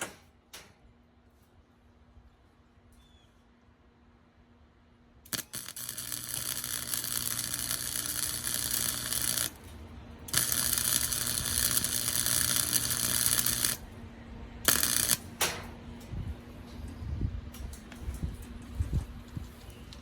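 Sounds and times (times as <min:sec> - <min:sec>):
low electrical hum: 0:00.0 - 0:20.0
arc welder crackling sizzle: 0:05.2 - 0:14.0, 0:14.6 - 0:16.2.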